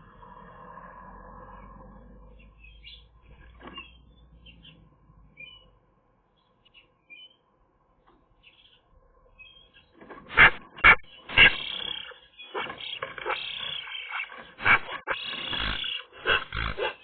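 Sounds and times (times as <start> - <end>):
high bird chirps and squeaks: 10.8 - 17.0.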